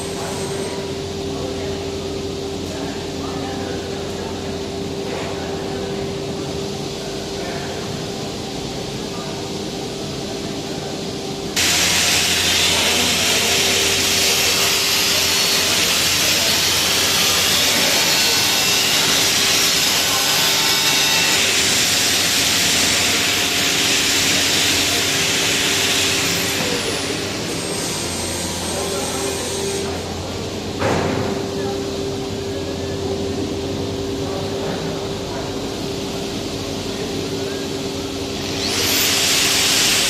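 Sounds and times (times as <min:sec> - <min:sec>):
angle grinder grinding metal: 0:11.6 - 0:29.8, 0:38.4 - 0:40.0.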